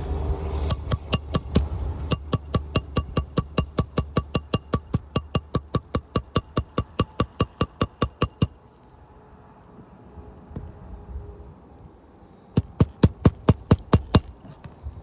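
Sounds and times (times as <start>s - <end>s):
hammer tapping a nail: 0.7s - 8.6s, 12.6s - 14.8s.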